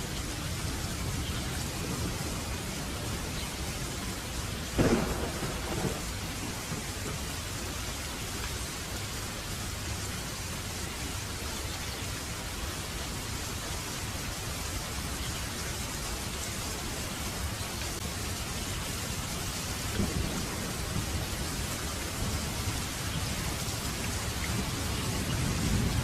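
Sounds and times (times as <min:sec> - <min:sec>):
heavy rain hissing: 0:00.0 - 0:26.0
rolls of thunder: 0:04.8 - 0:07.2, 0:19.9 - 0:21.4.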